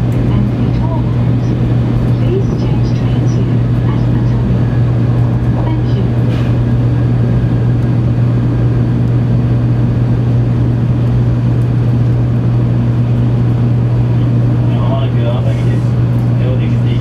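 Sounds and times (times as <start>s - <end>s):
strong low hum: 0.0s - 17.0s
train rumbling in tunnel: 0.0s - 17.0s.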